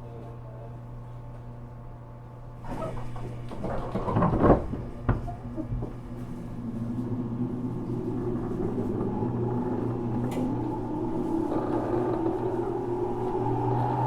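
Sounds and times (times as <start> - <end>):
train motor hum with rising whine: 5.8 - 14.0.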